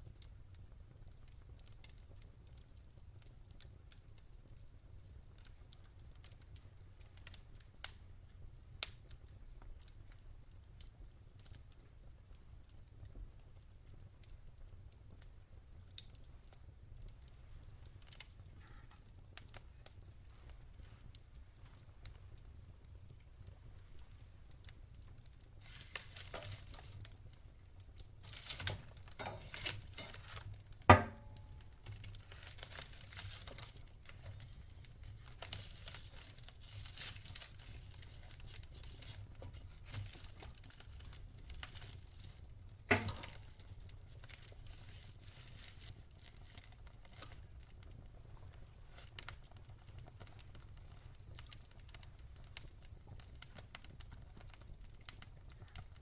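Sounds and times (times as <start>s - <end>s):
campfire crackling: 0.0s - 56.0s
sharp fire pops: 17.8s - 54.1s.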